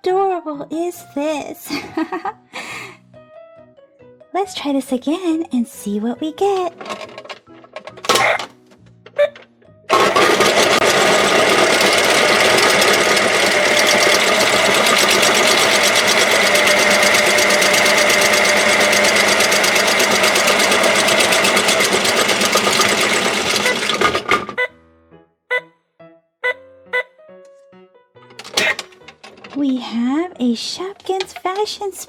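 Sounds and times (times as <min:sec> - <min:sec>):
toy washing machine whirring: 0:06.4 - 0:08.5, 0:09.9 - 0:24.7, 0:28.3 - 0:30.0, 0:30.7 - 0:32.0.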